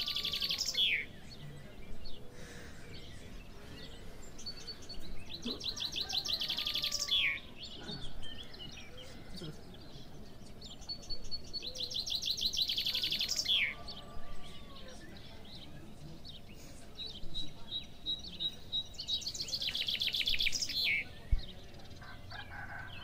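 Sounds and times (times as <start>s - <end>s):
faint bird chirps: 0.0s - 22.9s
songbird singing trilled phrases: 0.0s - 23.0s.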